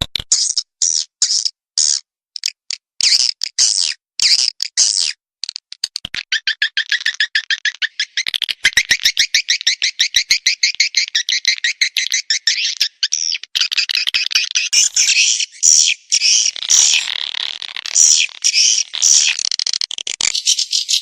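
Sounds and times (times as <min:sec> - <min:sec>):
swiftlet chirping calls: 0:06.3 - 0:17.1, 0:17.9 - 0:21.0.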